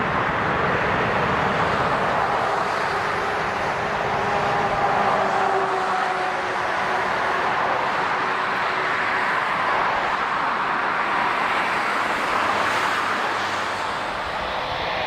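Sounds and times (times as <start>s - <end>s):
jet engine steady rush: 0.0s - 5.9s, 9.3s - 15.0s.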